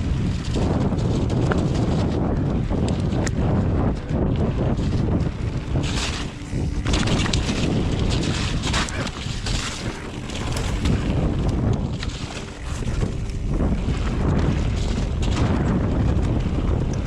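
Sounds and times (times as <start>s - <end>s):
bike tyres rumbling over trail: 0.0s - 17.0s
wind buffeting microphone: 0.0s - 17.0s
bike clicks and rattles: 0.1s - 15.6s.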